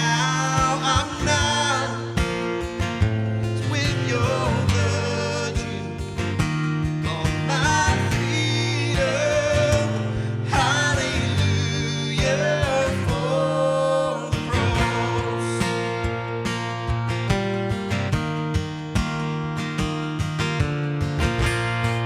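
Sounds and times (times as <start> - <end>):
acoustic guitar strumming: 0.0 - 22.0
person singing: 7.0 - 16.0.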